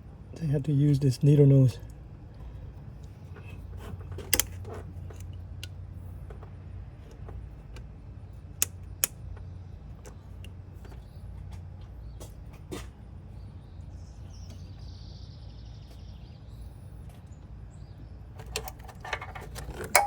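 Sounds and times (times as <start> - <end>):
steady low hum: 0.0 - 20.0
metallic clicks of hand tools: 4.2 - 5.8, 19.6 - 20.0.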